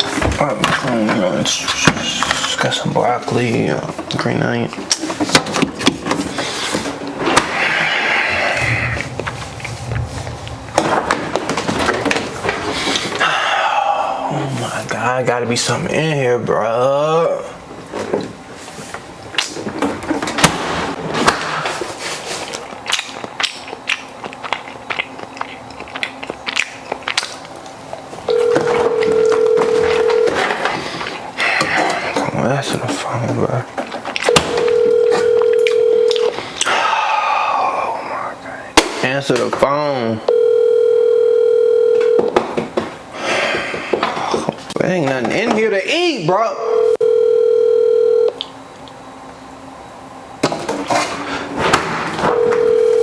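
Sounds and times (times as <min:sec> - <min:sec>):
clattering and handling noise: 0:00.0 - 0:07.8, 0:08.9 - 0:13.2, 0:17.8 - 0:22.8, 0:28.0 - 0:36.4, 0:50.4 - 0:53.0
telephone ringback tone: 0:28.3 - 0:30.6, 0:34.3 - 0:36.4, 0:40.3 - 0:42.4, 0:46.6 - 0:48.4, 0:52.3 - 0:53.0.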